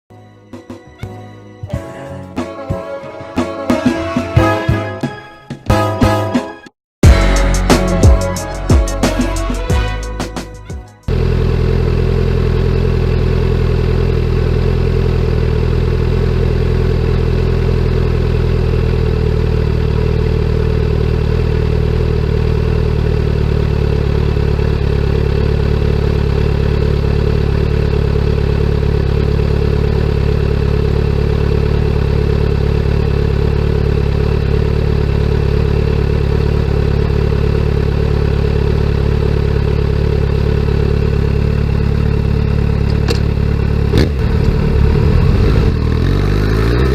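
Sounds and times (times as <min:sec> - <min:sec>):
motorcycle engine idling: 0:10.6 - 0:46.9.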